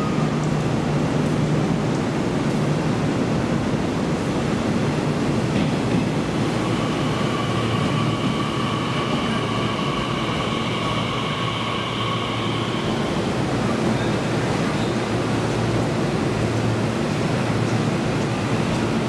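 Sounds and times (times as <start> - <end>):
train running on track: 0.0 - 19.0
high-pitched whine: 6.3 - 15.1.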